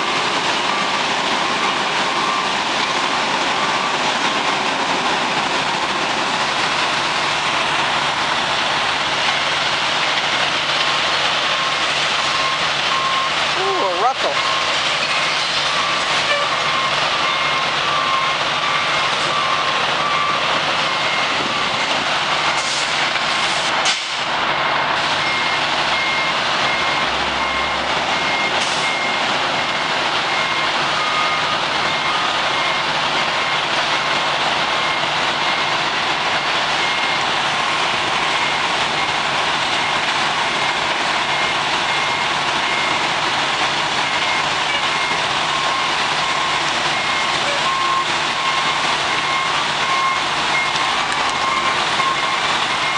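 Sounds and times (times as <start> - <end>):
backup alarms beeping: 0.0 - 3.0, 11.6 - 21.8, 25.2 - 34.2, 36.8 - 39.2, 41.3 - 43.0, 44.0 - 52.9
garbage truck running: 0.0 - 52.9.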